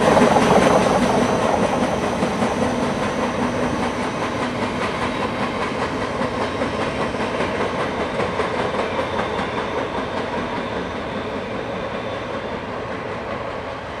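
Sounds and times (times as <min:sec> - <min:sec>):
freight train wheels clacking: 0:00.0 - 0:14.0.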